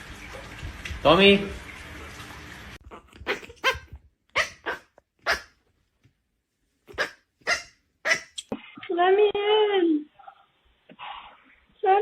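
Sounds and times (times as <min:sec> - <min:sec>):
dog barking: 0:03.2 - 0:05.6, 0:06.9 - 0:08.4.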